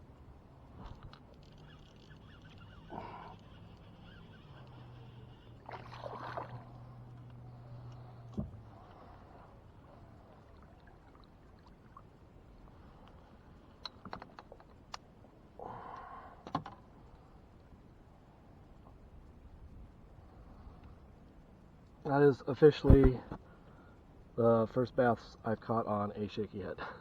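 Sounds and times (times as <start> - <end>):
faint low hum: 0.0 - 27.0
water splashing around a kayak: 2.7 - 13.4.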